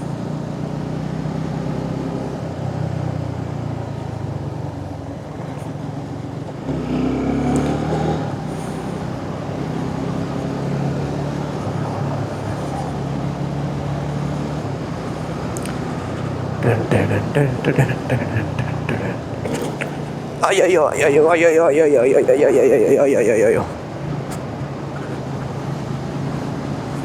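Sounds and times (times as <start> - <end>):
motorcycle engine cruising: 0.5 - 16.6.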